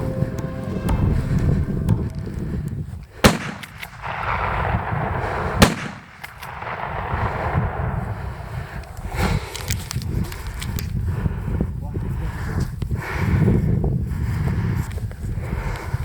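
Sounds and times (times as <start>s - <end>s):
gunshots: 3.2s - 9.7s.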